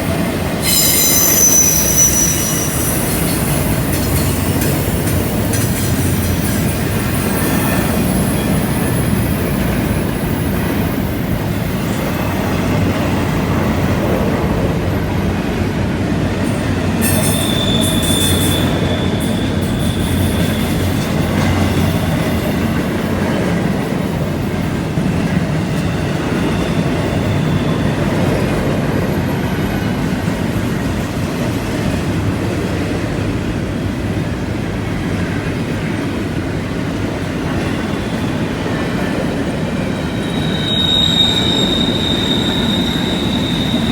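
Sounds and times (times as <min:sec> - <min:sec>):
train wheels rumbling on rail: 0:00.0 - 0:43.9
wheel flange squeal: 0:00.6 - 0:12.1, 0:17.0 - 0:21.9, 0:39.6 - 0:43.9.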